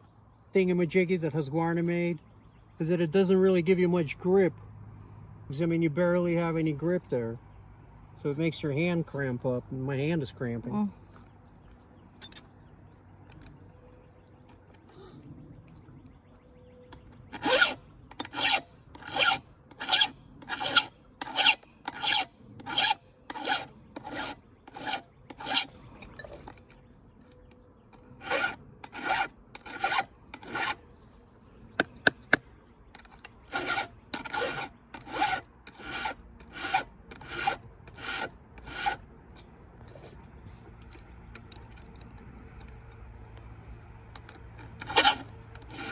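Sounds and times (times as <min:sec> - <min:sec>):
file rasping on chainsaw chain: 0:17.2 - 0:25.7, 0:28.2 - 0:30.8, 0:33.0 - 0:39.0, 0:44.2 - 0:45.9.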